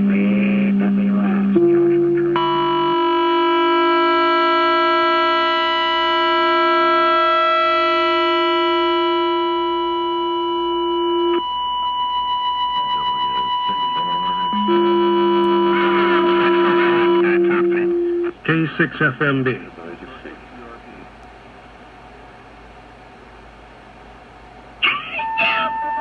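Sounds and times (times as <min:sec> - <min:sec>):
high wavering radio whistling tone: 0:00.0 - 0:18.4, 0:24.8 - 0:26.0
low radio whistling tone: 0:00.0 - 0:18.4, 0:24.8 - 0:26.0.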